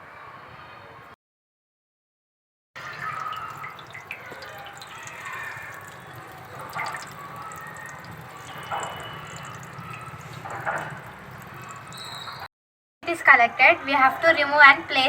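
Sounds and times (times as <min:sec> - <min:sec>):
water splashing and dripping: 0:02.8 - 0:12.5.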